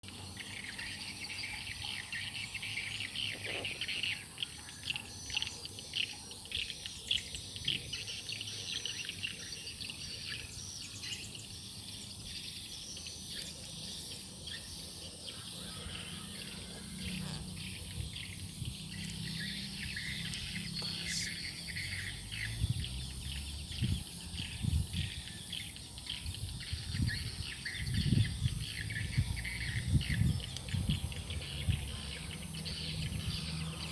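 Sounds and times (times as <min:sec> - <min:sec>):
birds chirping and calling: 0:00.1 - 0:33.9
high-pitched insect drone: 0:09.8 - 0:33.9.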